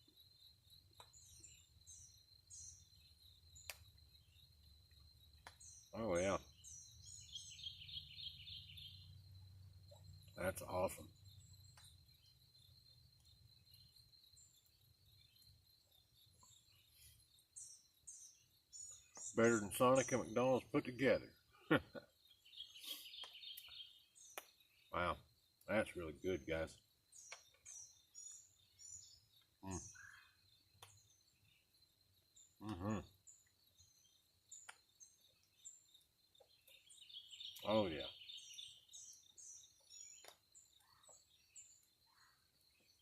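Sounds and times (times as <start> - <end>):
faint high bird chirps: 0.0 - 43.0
man humming while eating: 32.6 - 33.1.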